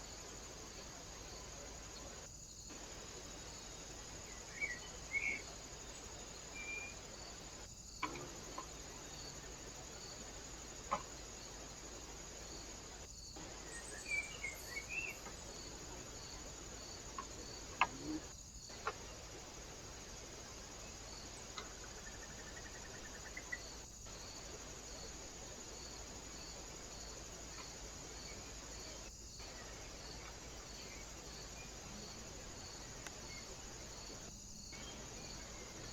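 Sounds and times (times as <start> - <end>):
background hiss: 0.0 - 35.9
cricket chirping: 0.0 - 35.9.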